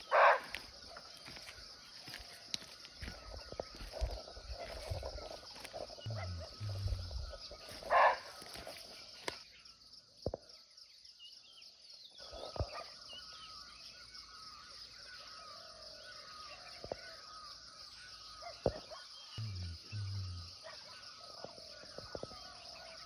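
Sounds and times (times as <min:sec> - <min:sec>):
high insect drone: 0:00.0 - 0:10.1, 0:19.4 - 0:23.0
faint bird chirps: 0:00.9 - 0:23.0
deer barking: 0:06.1 - 0:07.3.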